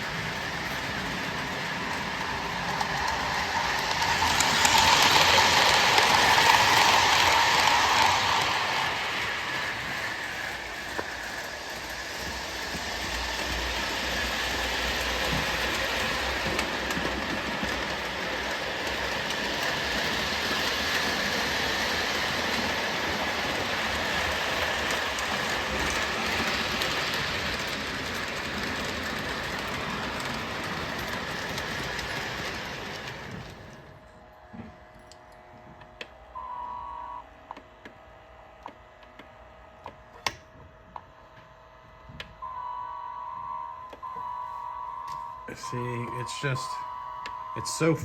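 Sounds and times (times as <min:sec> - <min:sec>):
model train rolling clatter: 0:00.0 - 0:36.1.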